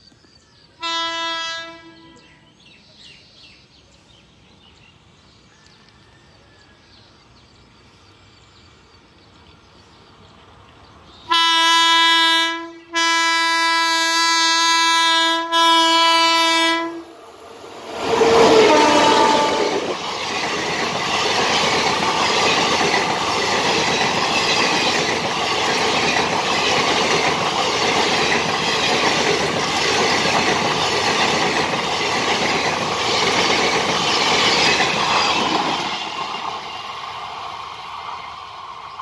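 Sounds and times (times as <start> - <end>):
train wheels rushing on rails: 17.0 - 39.0
clickety-clack over rail joints: 18.5 - 38.2.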